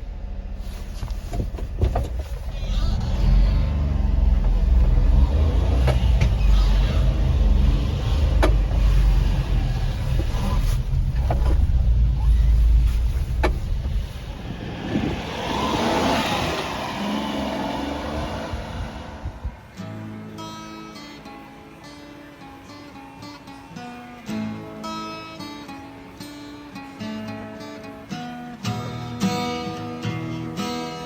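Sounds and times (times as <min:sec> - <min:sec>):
small truck engine rumbling: 0:00.0 - 0:20.7
sharp clicks and knocks: 0:08.2 - 0:08.8.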